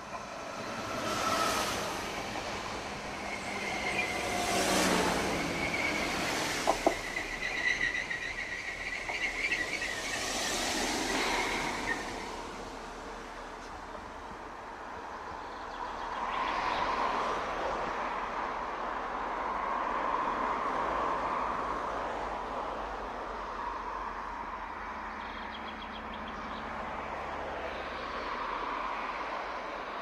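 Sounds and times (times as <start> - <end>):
train rushing rumble: 0.0 - 14.5.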